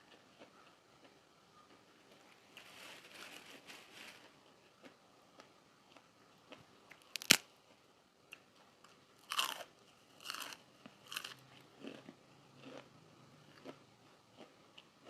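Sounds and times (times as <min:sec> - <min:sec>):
soft chewing: 0:00.0 - 0:15.0
crunchy food snapping: 0:05.9 - 0:07.5, 0:09.2 - 0:12.0
crunching bites: 0:06.9 - 0:07.5, 0:09.2 - 0:12.9.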